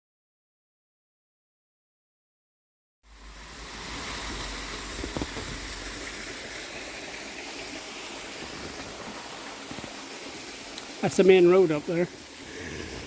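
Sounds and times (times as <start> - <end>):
small waterfall splashing: 3.1 - 13.0.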